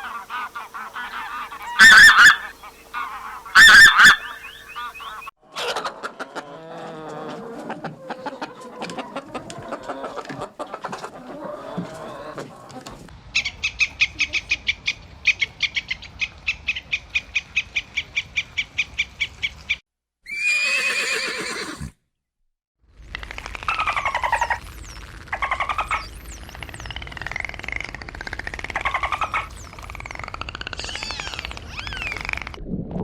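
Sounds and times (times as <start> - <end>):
animal calls: 0.0 - 10.2, 23.2 - 32.6
sharp high chirps: 24.2 - 27.0, 29.1 - 32.5.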